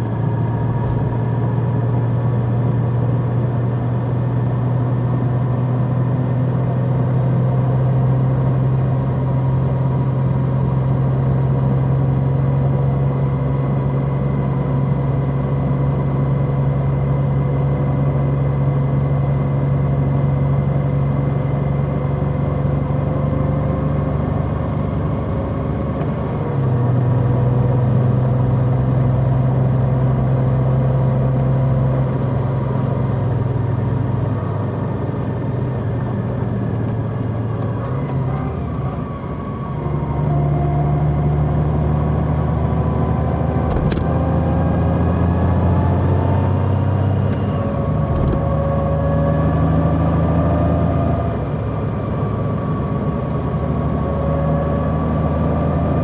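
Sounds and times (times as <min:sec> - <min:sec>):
motorcycle engine running: 0:43.4 - 0:44.5.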